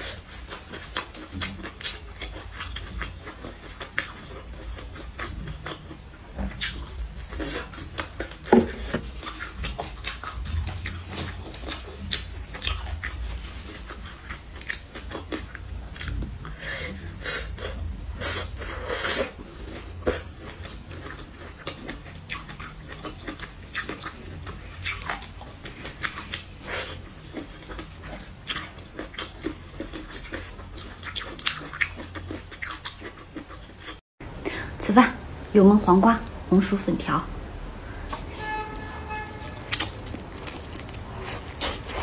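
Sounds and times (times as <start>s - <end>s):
chewing crunchy food: 0.0s - 34.0s, 39.5s - 42.0s
low hum: 34.2s - 42.0s.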